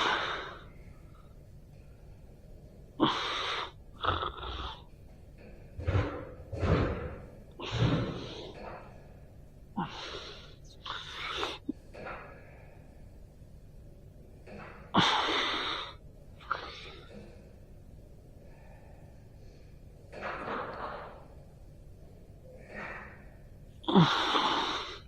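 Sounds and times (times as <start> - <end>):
person breathing forcefully: 5.8 - 8.6.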